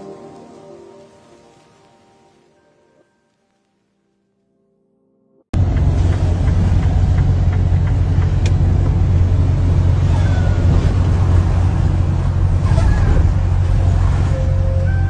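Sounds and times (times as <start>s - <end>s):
car road and engine rumble: 5.6s - 15.0s.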